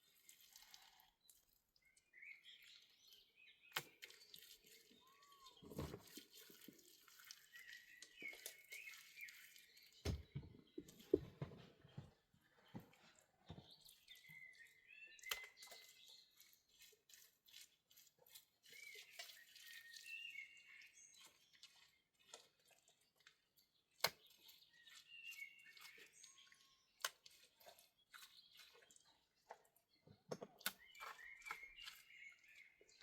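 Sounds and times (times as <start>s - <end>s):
faint bird chirping: 4.8s - 5.8s, 7.4s - 16.2s.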